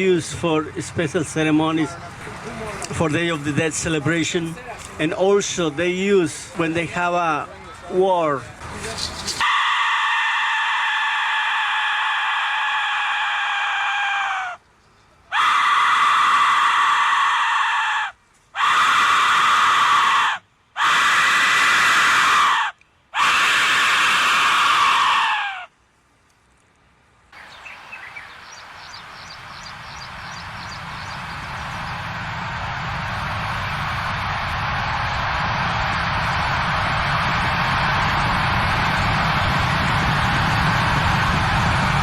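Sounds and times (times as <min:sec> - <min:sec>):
steady noise: 0:27.0 - 0:42.0.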